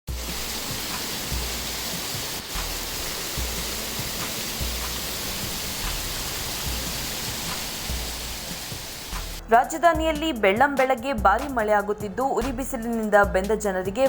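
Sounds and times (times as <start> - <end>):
heavy rain pouring: 0.1 - 9.4.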